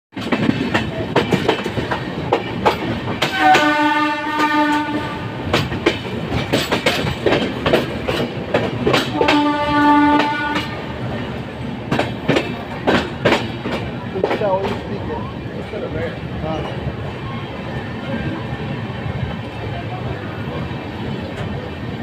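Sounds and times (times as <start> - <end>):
train wheels clattering over rails: 0.1 - 22.0
train horn: 3.2 - 5.4, 9.1 - 11.0.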